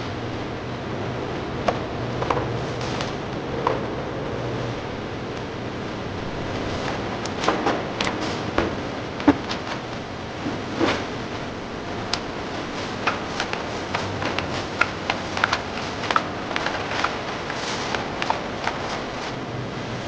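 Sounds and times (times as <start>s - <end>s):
factory machinery hum and hiss: 0.0s - 20.0s.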